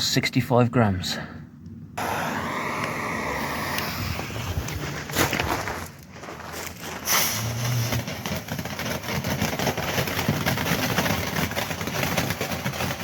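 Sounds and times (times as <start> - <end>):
firework rocket whoosh: 2.0 - 6.0, 7.0 - 8.1
small crackles: 3.7 - 13.0.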